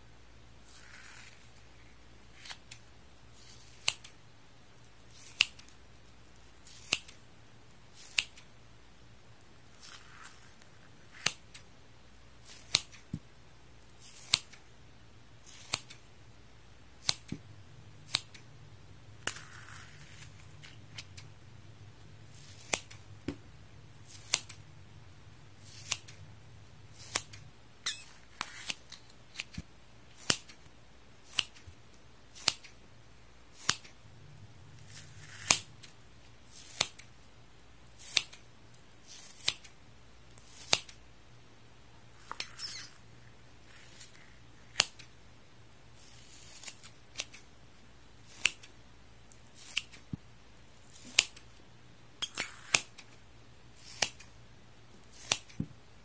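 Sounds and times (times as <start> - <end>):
scissors snipping sponge: 6.7 - 7.2, 15.4 - 16.0, 22.3 - 23.0, 24.0 - 24.6, 25.6 - 26.2, 26.9 - 29.6, 33.6 - 34.0, 34.8 - 35.9, 36.5 - 37.1, 53.8 - 54.3, 55.1 - 55.7.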